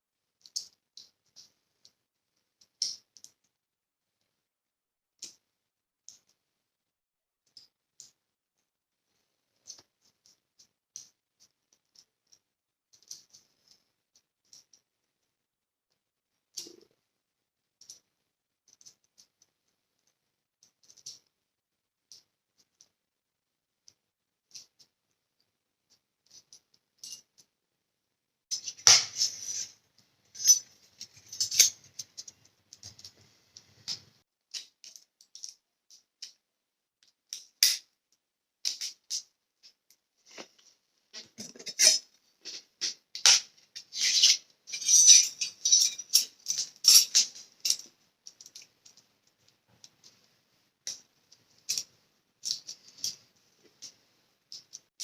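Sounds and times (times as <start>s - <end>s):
small steel pieces clinking: 30.3s - 33.1s, 43.9s - 49.0s.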